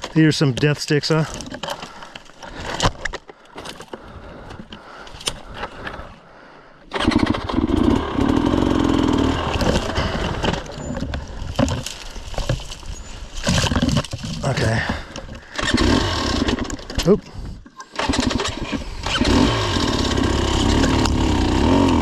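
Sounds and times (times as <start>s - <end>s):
dirt bike engine revving: 6.9s - 11.0s, 15.5s - 16.9s, 17.9s - 22.0s.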